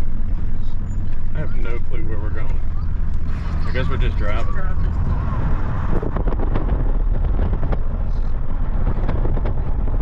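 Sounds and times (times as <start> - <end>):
vehicle engine and road rumble: 0.0 - 10.0.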